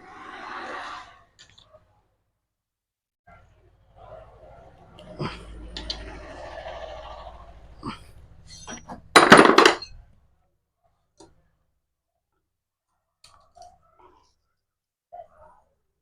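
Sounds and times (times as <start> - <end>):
metal tools clattering on workbench: 8.5 - 10.0.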